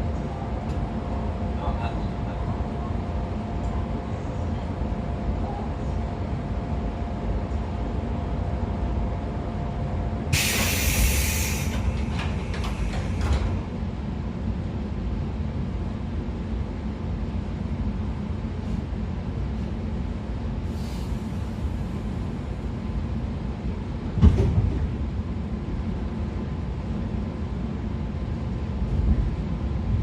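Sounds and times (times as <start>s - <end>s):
train motor and wheels rumbling: 0.0s - 30.0s
loud rushing hiss: 10.4s - 13.2s.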